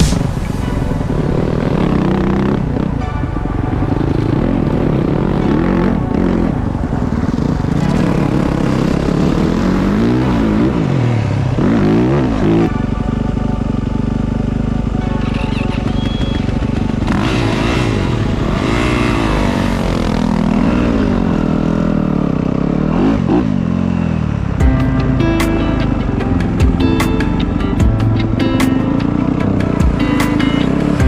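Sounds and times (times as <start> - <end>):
motocross bike engine revving: 7.3 - 12.7, 15.6 - 24.6.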